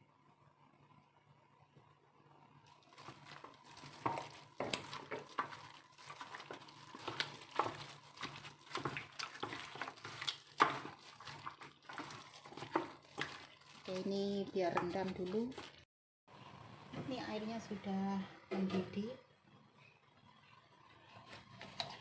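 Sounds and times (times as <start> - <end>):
chicken squelching in marinade: 2.7 - 14.0.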